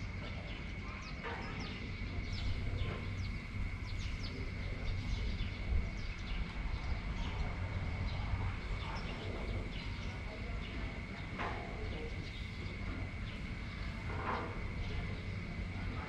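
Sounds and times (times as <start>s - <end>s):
birds chirping: 0.0s - 16.0s
wind rumbling: 1.8s - 11.2s.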